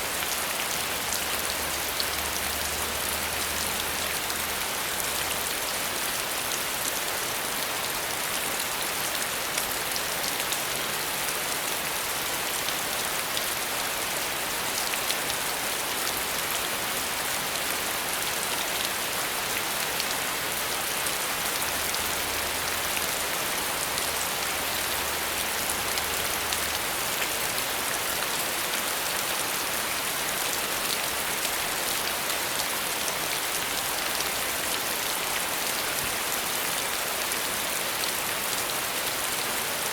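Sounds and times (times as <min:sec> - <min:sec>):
steady rain falling: 0:00.0 - 0:39.9
raindrops ticking on a surface: 0:21.4 - 0:28.3.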